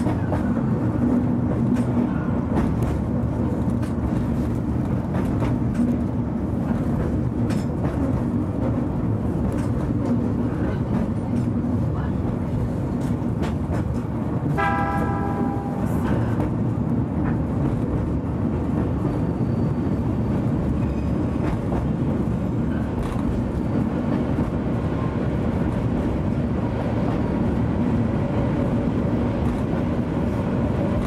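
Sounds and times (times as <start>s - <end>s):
train wheels rumbling: 0.0s - 31.0s
train horn toot: 14.6s - 16.1s.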